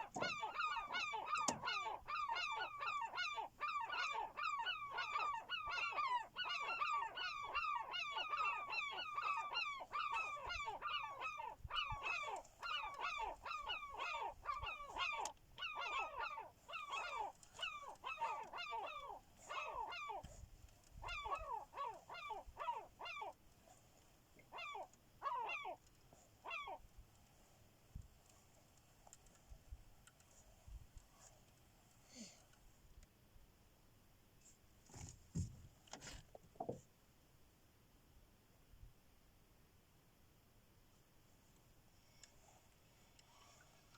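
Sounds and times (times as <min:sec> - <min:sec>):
gulls calling: 0:00.0 - 0:20.3, 0:21.0 - 0:23.4, 0:24.4 - 0:25.8.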